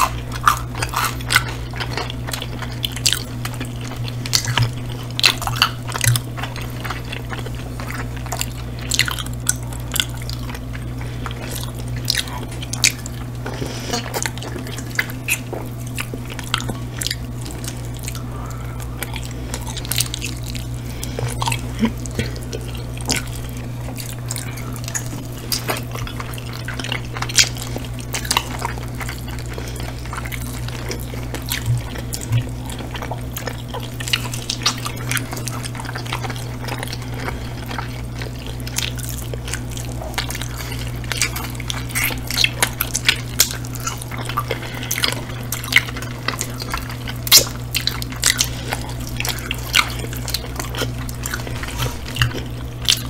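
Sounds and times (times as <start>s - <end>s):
people chewing wet mouth clicks: 0.0s - 53.0s
steady low hum: 0.0s - 53.0s.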